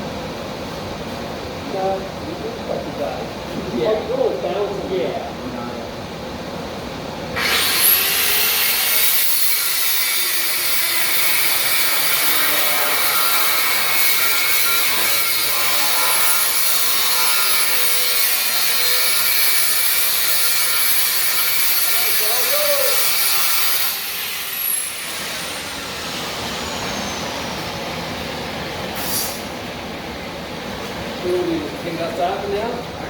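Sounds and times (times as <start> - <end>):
power tool cutting steel: 7.4 - 27.9.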